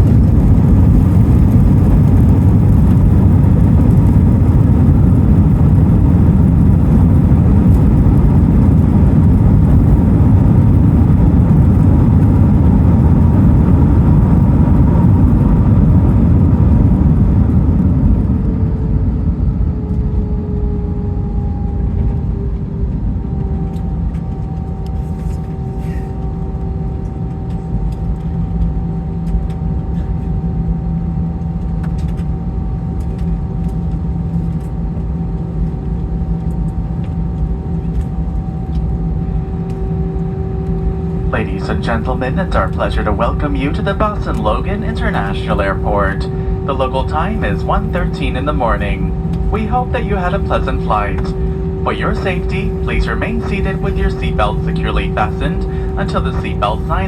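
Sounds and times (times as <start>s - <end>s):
wheels rumbling on runway: 0.0s - 28.4s
jet engines rumbling: 0.0s - 57.0s
two-toned engine whine: 0.0s - 57.0s.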